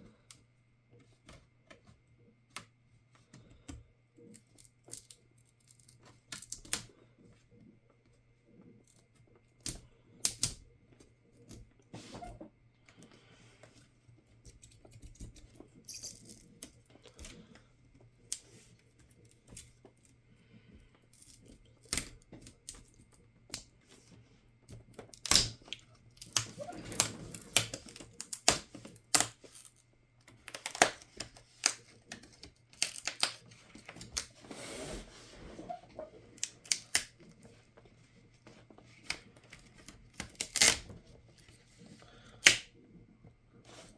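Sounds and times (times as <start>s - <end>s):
small tools being handled: 14.5s - 17.3s
plastic parts clicking and scraping: 21.0s - 42.7s.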